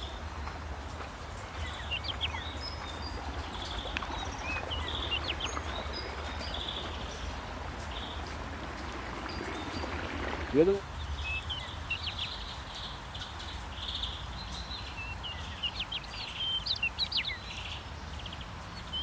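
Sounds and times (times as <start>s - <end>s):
low steady rumble: 0.0s - 10.7s
spring water flowing: 0.0s - 10.8s
birds chirping and trilling: 1.3s - 12.5s.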